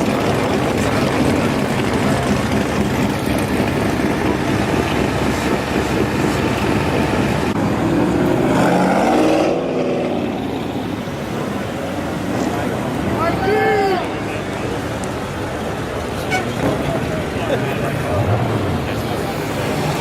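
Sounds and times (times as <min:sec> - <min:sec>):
engine note rising and falling: 0:00.0 - 0:13.0
traffic driving past: 0:03.2 - 0:20.0.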